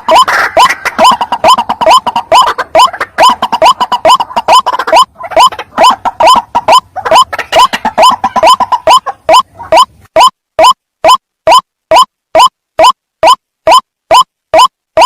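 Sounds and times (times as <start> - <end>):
waterhen calling harsh notes: 0.0 - 14.7.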